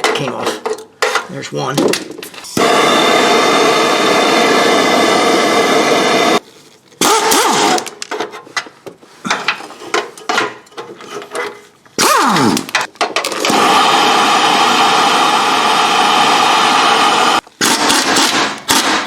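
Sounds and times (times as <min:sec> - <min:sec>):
power wrench running: 0:07.0 - 0:08.0, 0:13.4 - 0:19.0.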